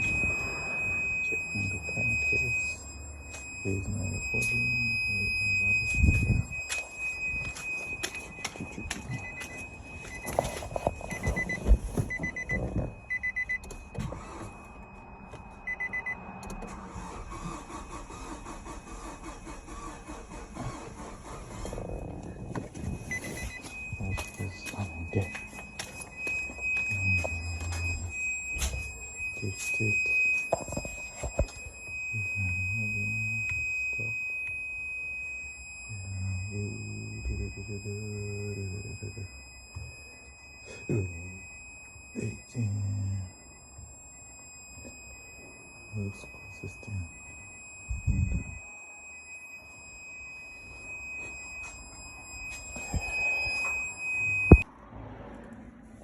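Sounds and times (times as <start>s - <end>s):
electronic beeper high beeps: 0.0s - 21.4s, 23.0s - 54.6s
engine cranking on starter motor: 14.0s - 14.5s, 16.4s - 21.9s.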